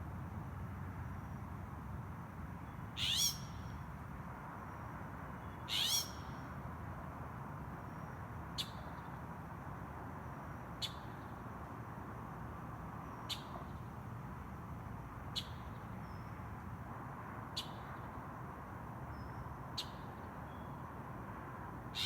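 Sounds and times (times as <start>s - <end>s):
bird calling harshly: 3.0s - 3.6s, 5.7s - 6.2s.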